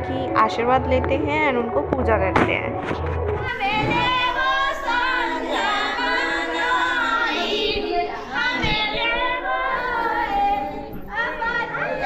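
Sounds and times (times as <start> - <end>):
women singing folk song: 3.4 - 12.0.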